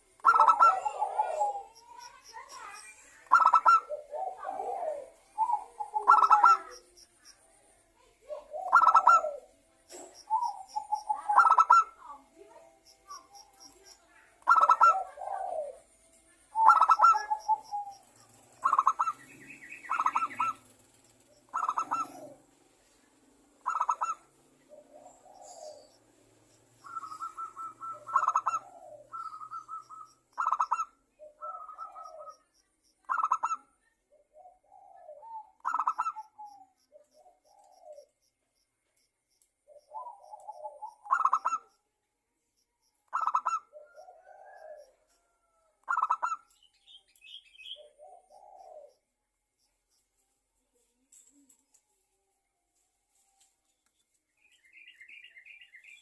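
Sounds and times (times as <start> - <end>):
doves cooing: 0.0 - 7.0, 8.3 - 12.1, 14.4 - 16.0, 16.6 - 22.7, 23.6 - 38.2, 39.7 - 41.7, 43.1 - 46.5, 47.6 - 49.1.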